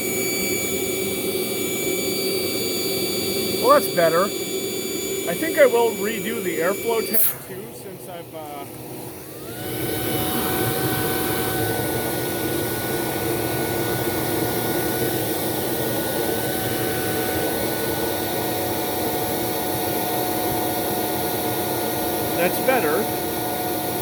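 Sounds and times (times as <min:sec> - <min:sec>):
vacuum motor whining: 0:00.0 - 0:24.0
rush of air: 0:07.1 - 0:08.0.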